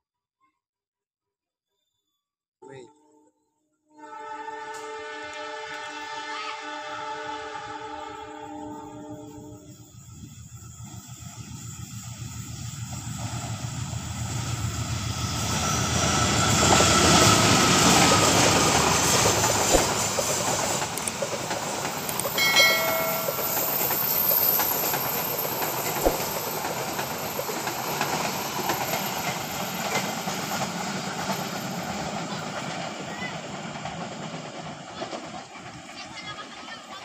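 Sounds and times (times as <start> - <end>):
train wheels rumbling on rails: 10.0 - 37.0
short pitched tone: 22.4 - 24.0.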